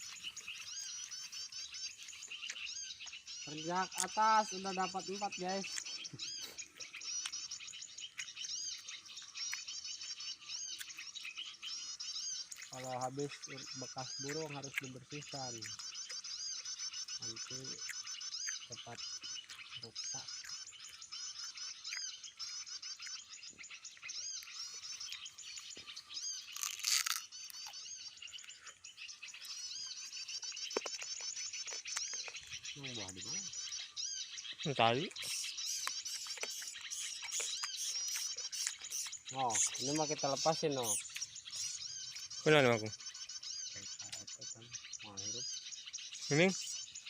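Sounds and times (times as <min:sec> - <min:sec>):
small birds chirping: 0:00.0 - 0:47.0
rustling crunch: 0:25.0 - 0:32.6.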